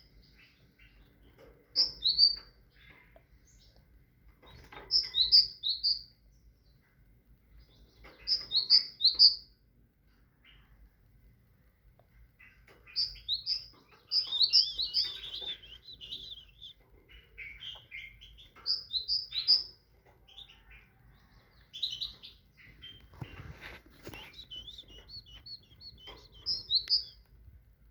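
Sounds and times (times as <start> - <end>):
great tit singing: 0.0 - 3.8, 4.5 - 6.1, 7.6 - 9.5, 12.4 - 23.2, 24.0 - 27.2
rustling: 22.2 - 27.2.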